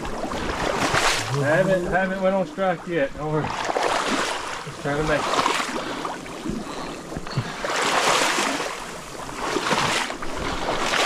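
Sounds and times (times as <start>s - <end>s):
legs wading through water: 0.0s - 11.0s.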